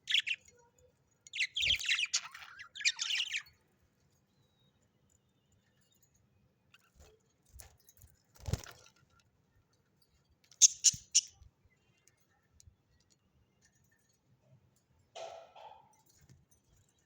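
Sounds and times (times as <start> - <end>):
sharp high-pitched bird chirps: 0.0 - 0.7, 1.3 - 3.6, 10.5 - 11.4.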